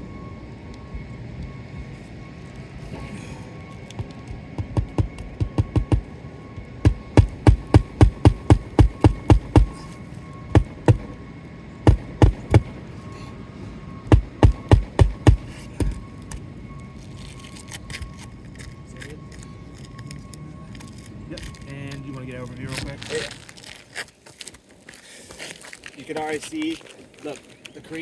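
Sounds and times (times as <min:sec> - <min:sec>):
hammer striking roofing nails: 0:04.6 - 0:06.1, 0:06.8 - 0:09.9, 0:10.6 - 0:11.2, 0:11.9 - 0:12.8, 0:14.1 - 0:16.0.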